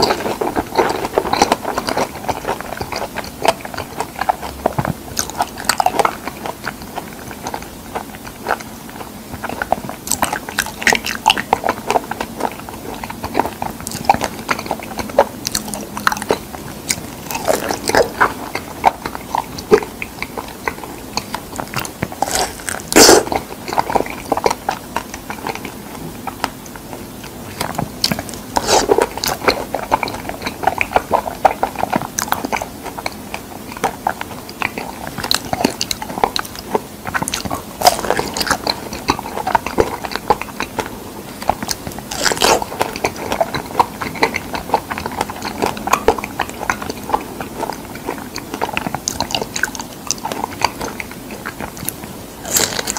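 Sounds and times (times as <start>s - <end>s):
mouth clicks: 0.0s - 26.8s
chewing and biting fruit: 0.0s - 52.9s.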